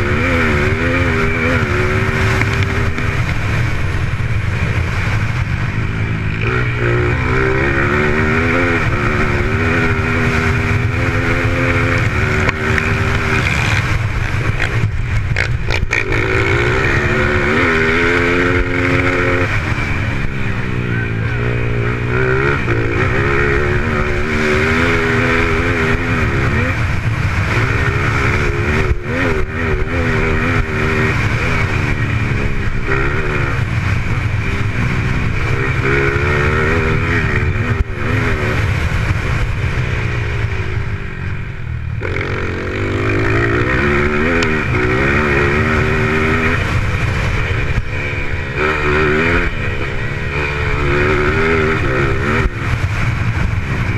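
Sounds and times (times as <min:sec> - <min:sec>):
constant low rumble: 0:00.0 - 0:53.9
dirt bike engines revving: 0:00.0 - 0:53.9.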